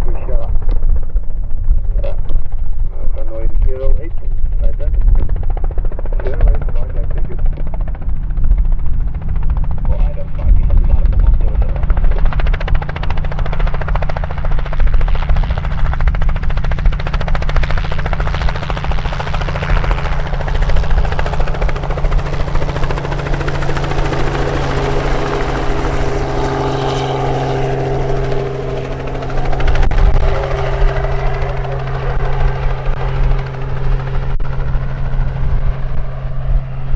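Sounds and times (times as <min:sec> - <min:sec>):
helicopter engine drone: 0:00.0 - 0:36.9
higher steady tones: 0:12.4 - 0:36.4.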